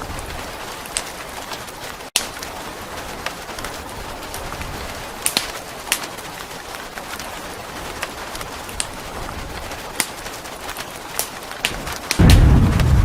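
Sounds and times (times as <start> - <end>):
rain hiss: 0.0 - 13.0
wood fire crackling and popping: 0.0 - 13.0.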